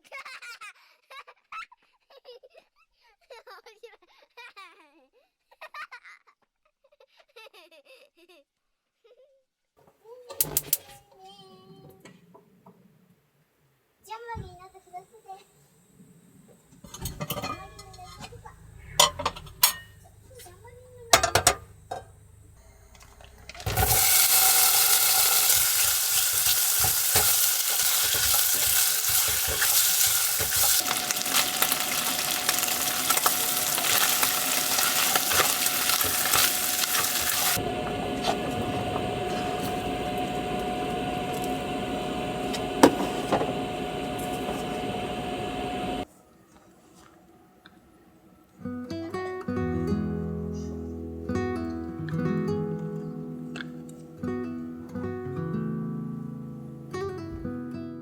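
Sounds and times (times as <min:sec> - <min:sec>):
jam sizzling and bubbling in pan: 0:18.8 - 0:46.0
stirring in pan: 0:23.7 - 0:46.0.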